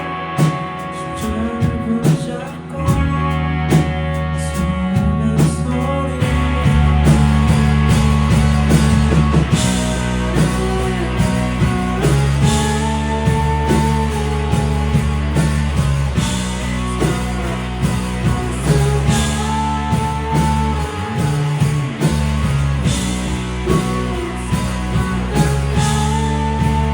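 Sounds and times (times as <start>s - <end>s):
live rock band playing: 0.0s - 26.9s
drum hits: 6.6s - 26.9s.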